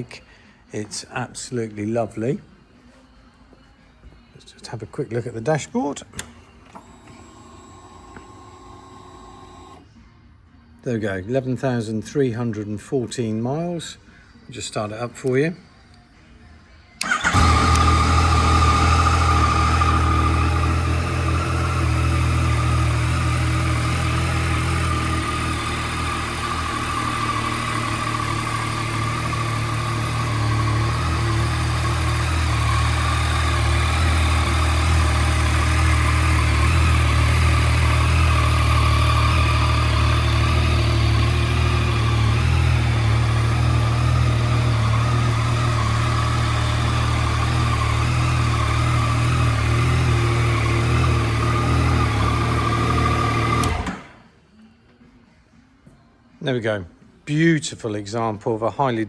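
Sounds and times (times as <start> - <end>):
motorcycle engine idling: 17.0 - 54.1.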